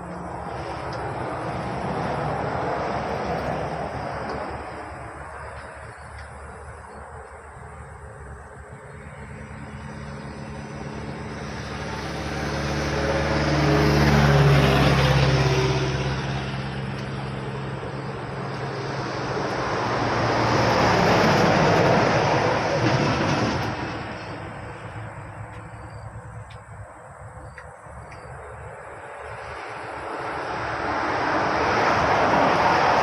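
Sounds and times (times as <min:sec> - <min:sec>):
vehicle engine passing: 0:07.5 - 0:26.4.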